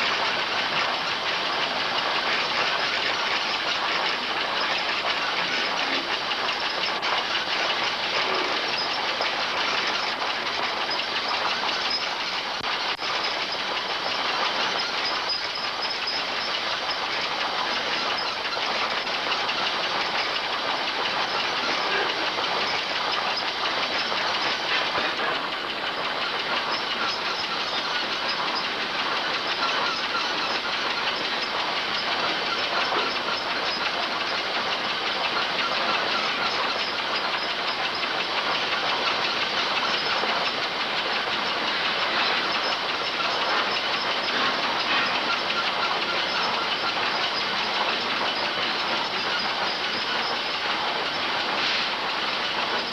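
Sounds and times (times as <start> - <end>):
machinery clattering: 0.0 - 52.9
steam hissing: 15.0 - 52.9.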